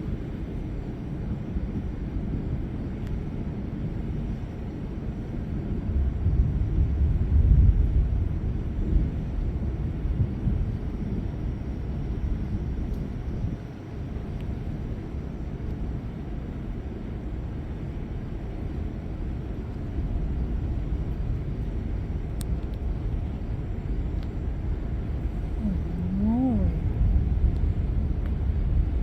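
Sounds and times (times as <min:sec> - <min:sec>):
low rolling thunder: 0:05.7 - 0:12.5, 0:20.3 - 0:29.0
faint ticks: 0:12.9 - 0:13.1.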